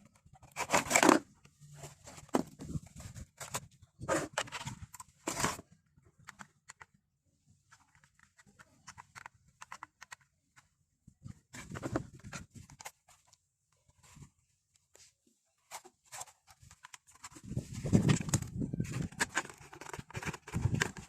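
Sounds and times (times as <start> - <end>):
small plastic clicks: 7.7 - 10.7
packaging rustling and crinkling: 15.7 - 21.0.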